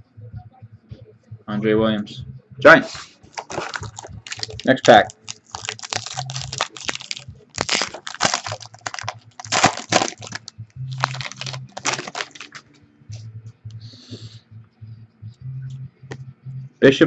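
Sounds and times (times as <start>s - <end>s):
cards clicking: 3.3s - 12.7s
wrapper tearing and crinkling: 3.3s - 12.7s.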